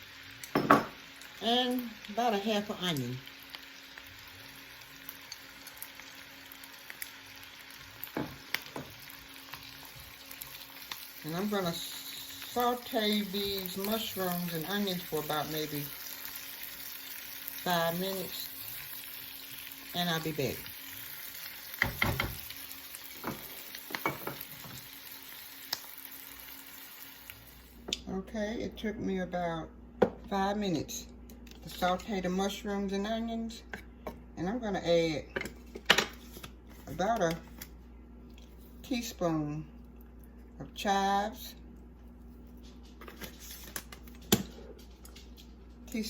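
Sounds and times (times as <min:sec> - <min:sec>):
vegetables sizzling in a pan: 0:00.0 - 0:28.0.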